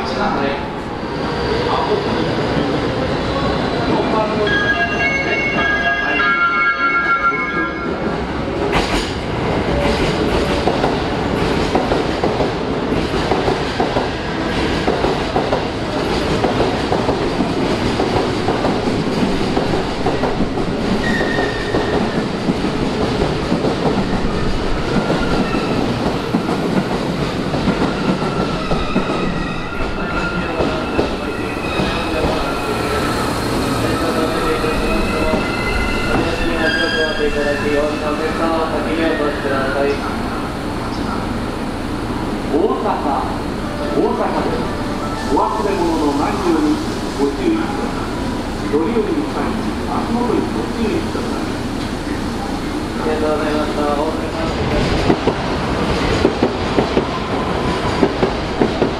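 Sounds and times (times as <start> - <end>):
train rumble: 7.9 - 58.9
wheel and brake squeals: 21.0 - 22.2.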